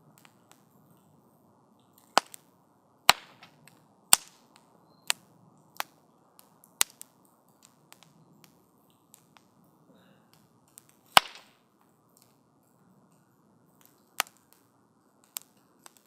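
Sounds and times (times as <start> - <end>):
soft hiss of flames: 0.0 - 16.0
wood fire crackling and popping: 0.0 - 16.0.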